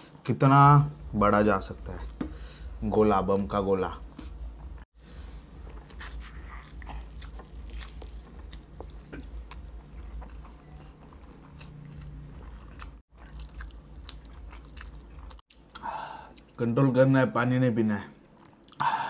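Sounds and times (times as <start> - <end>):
wet chewing and mouth smacking: 5.5 - 16.7, 18.2 - 18.8.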